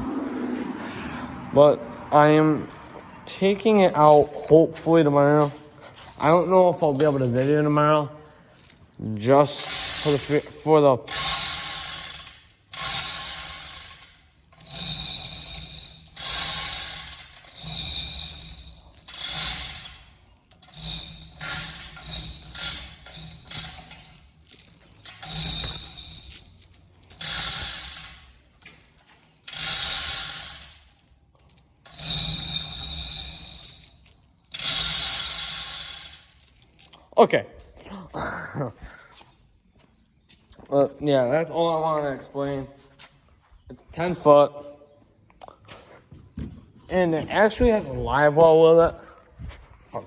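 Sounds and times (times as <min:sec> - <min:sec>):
fishing reel ratcheting clicks: 0:09.6 - 0:10.4, 0:11.1 - 0:28.7, 0:29.4 - 0:31.0, 0:31.9 - 0:36.6.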